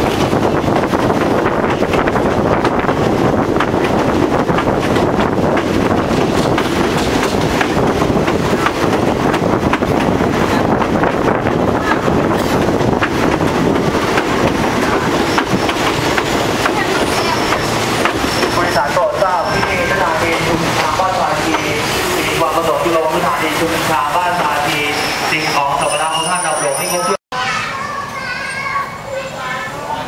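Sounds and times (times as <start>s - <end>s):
train wheels rumbling on rails: 0.0s - 27.0s
light clicks of train wheels: 11.9s - 18.3s.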